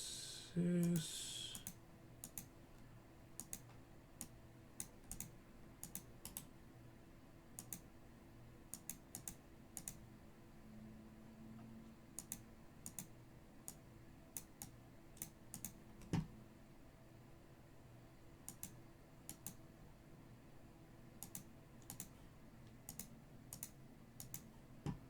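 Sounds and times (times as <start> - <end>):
keyboard or mouse clicks: 0.8 - 2.5, 3.4 - 6.5, 7.6 - 7.9, 8.7 - 10.0, 12.2 - 13.1, 14.4 - 16.3, 18.5 - 19.6, 21.2 - 22.1, 22.9 - 25.0.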